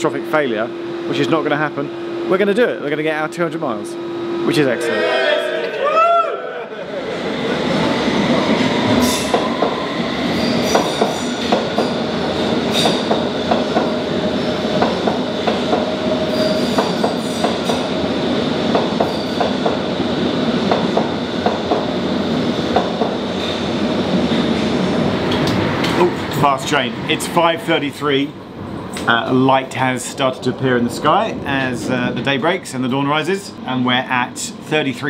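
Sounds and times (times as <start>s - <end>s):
high-pitched train squeal: 4.2s - 6.2s, 8.3s - 11.9s, 16.2s - 17.8s, 19.0s - 19.4s
train wheels clattering: 8.5s - 14.0s, 14.6s - 18.0s.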